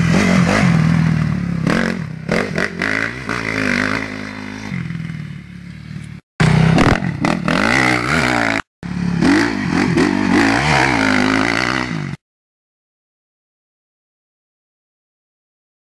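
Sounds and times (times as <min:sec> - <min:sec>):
dirt bike engine revving: 0:00.0 - 0:12.2.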